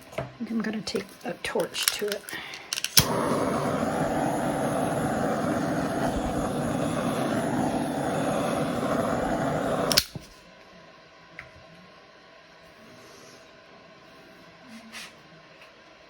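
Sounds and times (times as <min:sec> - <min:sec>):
handheld torch roaring: 0:02.8 - 0:10.2.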